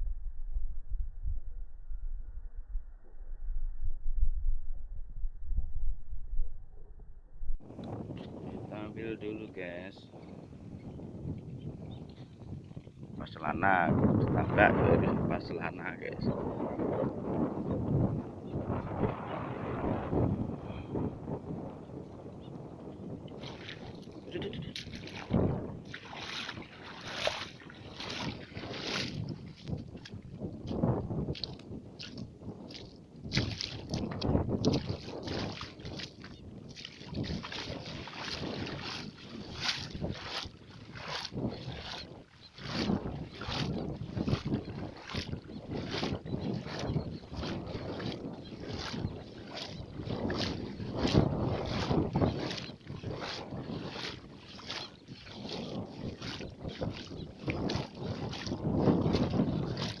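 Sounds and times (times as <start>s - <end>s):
wind rumbling on microphone: 0.0s - 60.0s
water sloshing and splashing: 22.8s - 60.0s.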